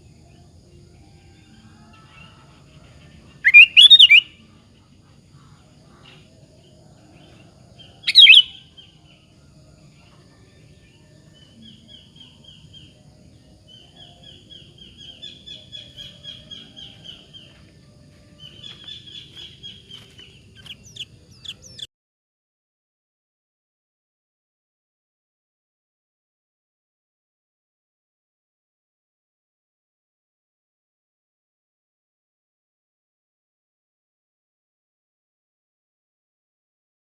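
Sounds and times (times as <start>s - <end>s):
bird chirping: 2.0s - 4.4s, 7.2s - 9.2s, 11.3s - 17.7s, 18.3s - 21.9s
bird whistled phrase: 3.4s - 4.3s, 8.1s - 8.5s.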